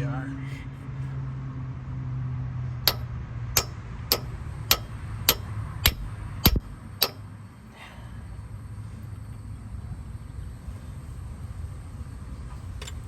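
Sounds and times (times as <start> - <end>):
hammer strikes: 2.9 - 7.2.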